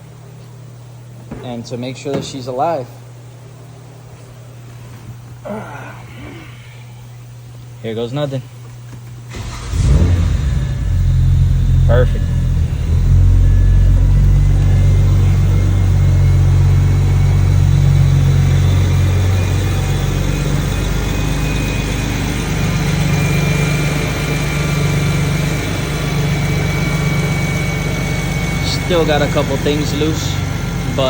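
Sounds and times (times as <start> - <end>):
car engine idling: 9.3 - 31.0.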